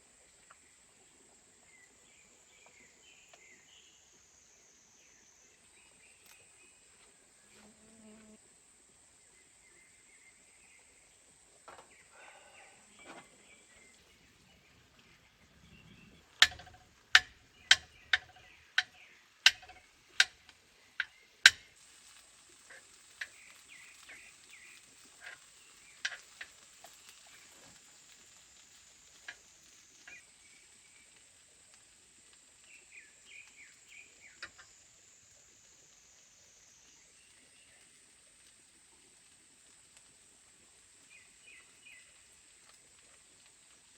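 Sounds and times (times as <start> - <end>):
bird chirps: 11.9 - 19.8
faint clicks: 15.8 - 34.8
sharp knocks: 16.4 - 18.4.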